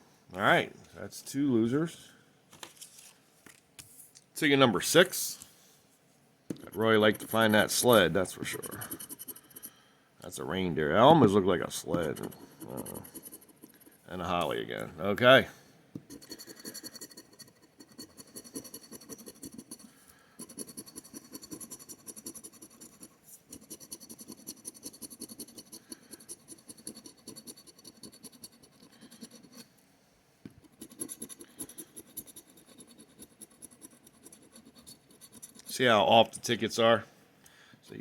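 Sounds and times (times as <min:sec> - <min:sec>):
lottery ticket being scratched: 0:06.5 - 0:09.8, 0:11.0 - 0:14.9, 0:16.1 - 0:29.7, 0:30.6 - 0:36.0.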